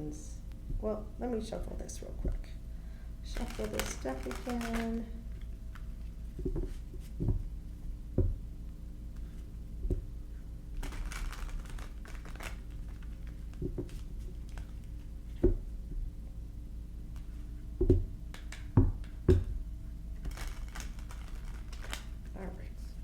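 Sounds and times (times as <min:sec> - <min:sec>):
steady low hum: 0:00.0 - 0:23.0
cards shuffling: 0:03.4 - 0:07.1, 0:10.8 - 0:15.0, 0:20.2 - 0:22.3.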